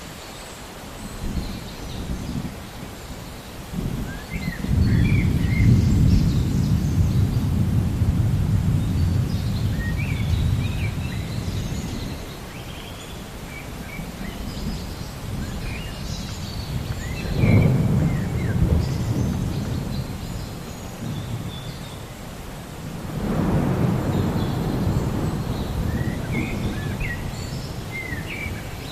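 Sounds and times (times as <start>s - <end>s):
small birds chirping: 0.0s - 7.7s, 8.5s - 28.9s
rain-like hiss: 0.0s - 28.9s
distant thunder rolling: 3.7s - 12.3s, 13.7s - 28.9s.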